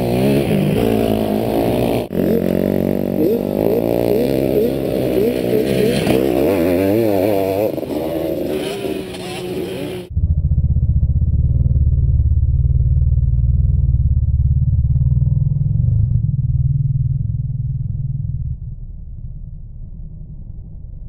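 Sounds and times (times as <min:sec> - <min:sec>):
two-stroke motorcycle racing past: 0:00.0 - 0:10.1
low muffled pulsing: 0:10.0 - 0:21.0.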